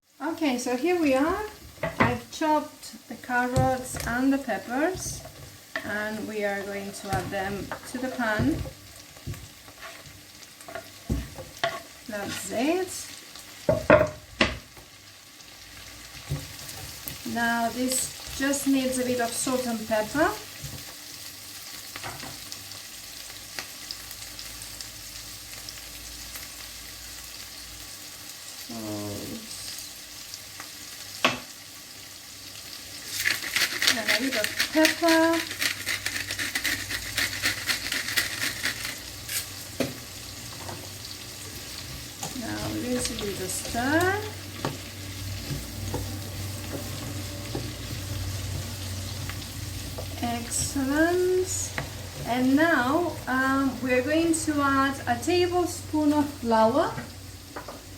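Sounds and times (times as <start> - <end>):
vegetables sizzling in oil: 0.0 - 57.9.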